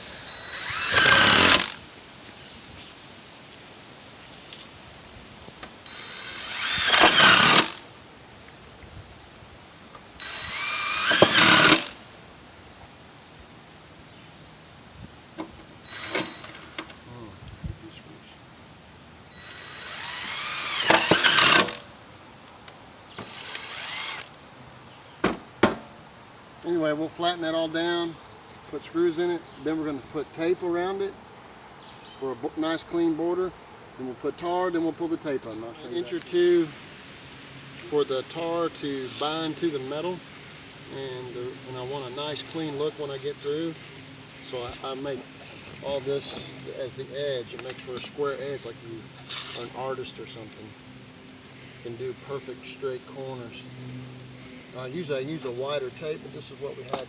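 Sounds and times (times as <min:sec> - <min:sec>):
power drill driving screws into metal: 0:00.0 - 0:01.8, 0:05.8 - 0:07.8, 0:10.2 - 0:12.0, 0:15.8 - 0:17.0, 0:19.3 - 0:21.9, 0:23.2 - 0:24.4, 0:39.0 - 0:39.8.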